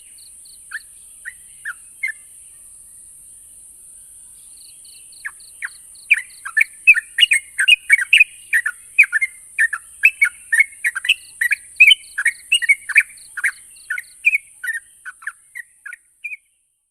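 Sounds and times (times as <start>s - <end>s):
bird singing chattering notes: 4.8s - 16.0s.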